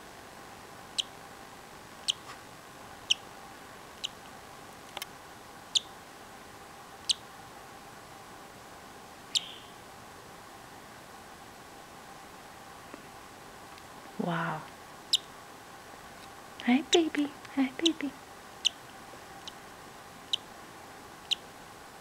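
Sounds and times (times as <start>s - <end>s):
chick peeping: 2.0s - 2.4s, 7.0s - 7.2s, 9.3s - 9.8s, 15.1s - 15.3s, 16.8s - 18.8s, 20.3s - 20.5s, 21.2s - 21.4s.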